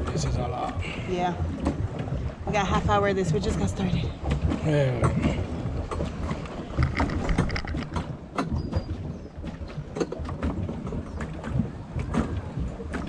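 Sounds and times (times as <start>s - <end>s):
water churning: 0.0s - 13.0s
wind rumbling on microphone: 0.0s - 13.0s
clicks and knocks: 4.3s - 13.0s.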